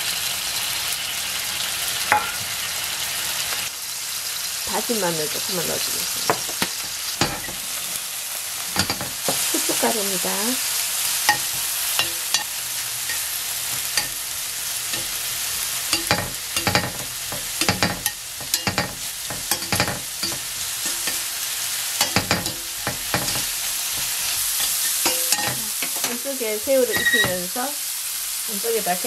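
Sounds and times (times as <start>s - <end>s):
shrimp sizzling in oil: 0.0s - 29.0s
tongs tapping a pan: 2.1s - 2.5s, 6.3s - 7.6s, 8.7s - 9.5s, 11.3s - 14.3s, 14.9s - 21.4s, 22.0s - 27.5s.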